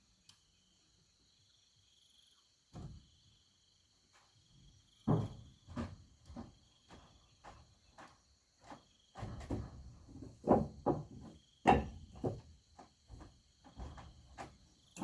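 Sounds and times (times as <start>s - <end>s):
insects chirring: 0.0s - 15.0s
irregular knocks and taps: 5.0s - 15.0s.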